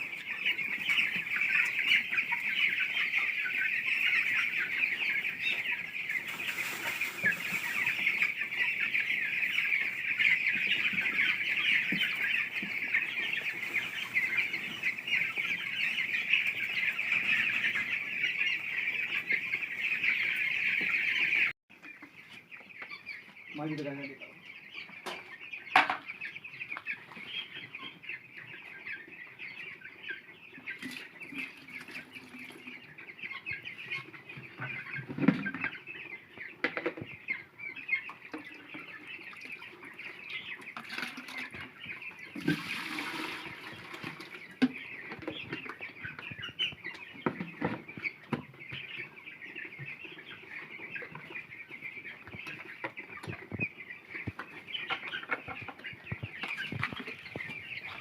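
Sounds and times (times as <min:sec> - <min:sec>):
chickens clucking: 0:00.0 - 0:58.0
rustling: 0:05.6 - 0:08.7.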